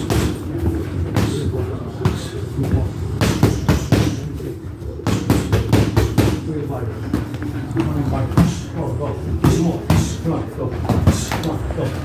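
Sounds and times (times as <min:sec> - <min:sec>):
boxing gloves striking pads: 0:00.0 - 0:00.5, 0:01.1 - 0:04.3, 0:05.0 - 0:06.5, 0:09.4 - 0:10.2.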